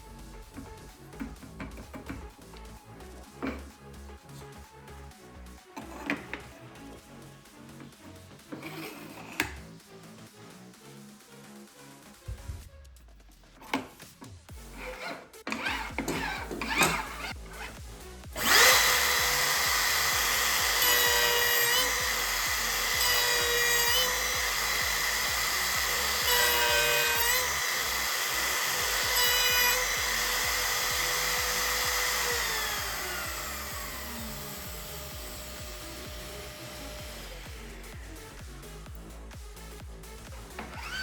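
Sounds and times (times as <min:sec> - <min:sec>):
power tool motor whining: 0:00.4 - 0:03.7, 0:05.8 - 0:07.0, 0:07.8 - 0:09.7, 0:13.6 - 0:39.1, 0:40.3 - 0:41.0.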